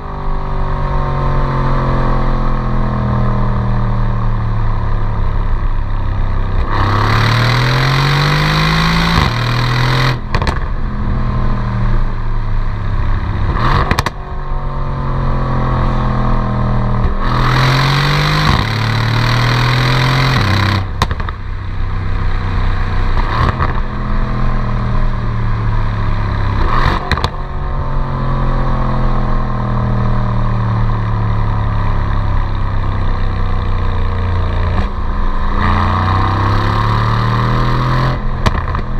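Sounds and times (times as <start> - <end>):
car exhaust accelerating hard: 2.2 - 38.9
exhaust cracks: 9.1 - 10.9, 20.4 - 21.5.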